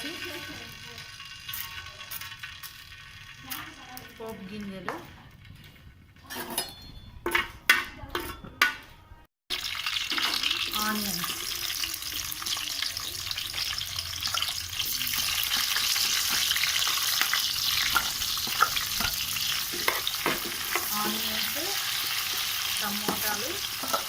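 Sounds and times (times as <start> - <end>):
onions sizzling in hot oil: 0.0 - 4.7, 9.5 - 24.0.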